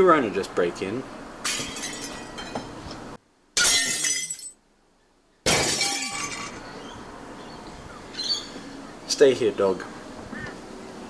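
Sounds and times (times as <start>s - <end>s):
glass shattering: 1.4s - 2.8s, 3.6s - 4.6s, 5.5s - 6.6s.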